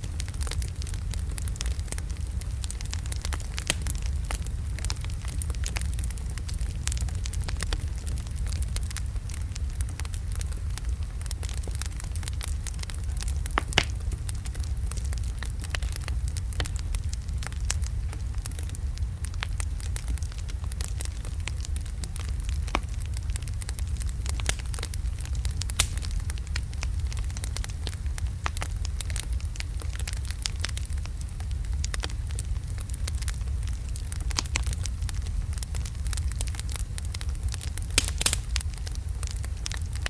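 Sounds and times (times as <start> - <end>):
fire crackling and popping: 0.0 - 40.0
fire rumbling: 0.0 - 40.0.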